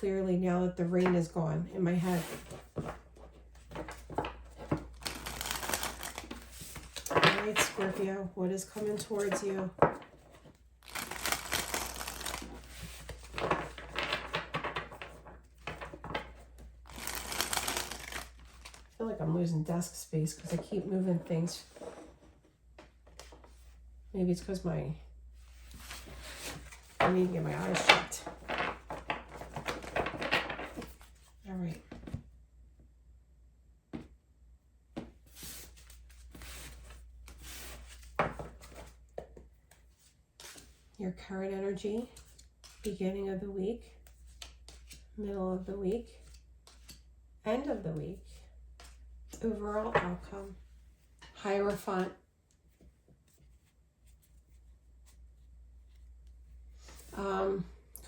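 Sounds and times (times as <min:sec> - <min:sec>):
cards rustling: 0:02.0 - 0:19.0
cards rubbing and sliding: 0:04.8 - 0:07.1, 0:10.8 - 0:13.9, 0:16.9 - 0:18.9.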